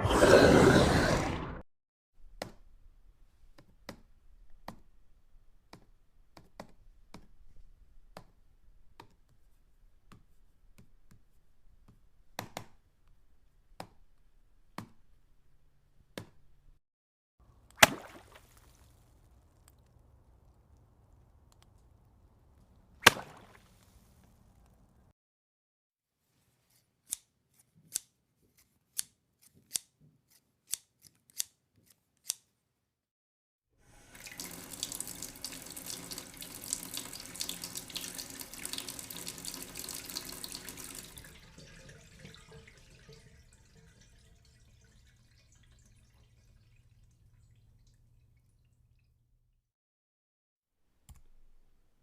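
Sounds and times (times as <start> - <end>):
running water rushing: 34.0 - 48.0.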